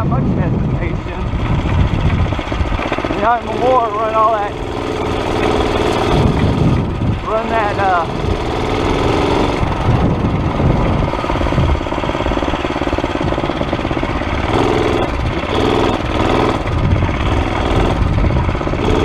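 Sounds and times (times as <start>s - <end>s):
small engine revving: 0.9s - 19.0s.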